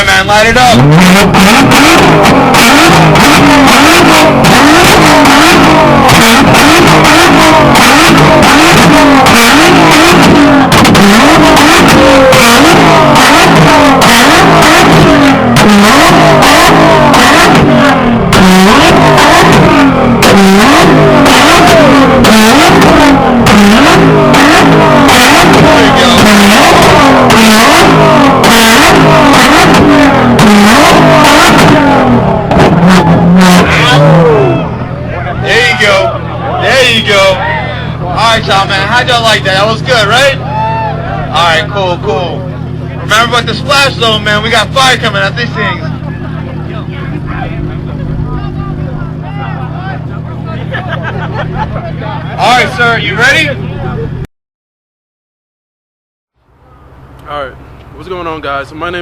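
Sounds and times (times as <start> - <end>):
exhaust popping and crackling: 0.0 - 54.2, 56.4 - 59.0
car engine revving: 0.0 - 54.3, 56.4 - 59.0.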